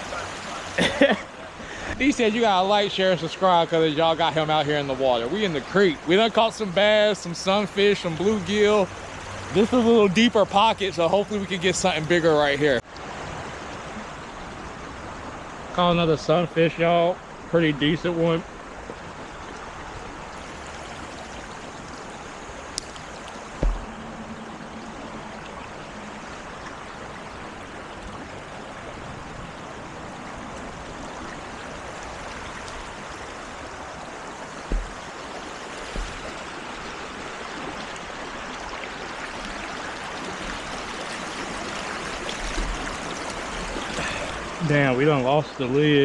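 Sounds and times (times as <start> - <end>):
creek water running over rocks: 0.0 - 46.0
low thumps: 23.5 - 24.1, 34.6 - 35.2, 35.8 - 36.5.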